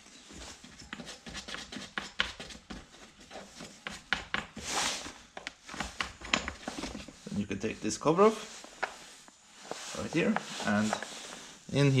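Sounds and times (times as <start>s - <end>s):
short scraping rub: 8.2s - 11.7s.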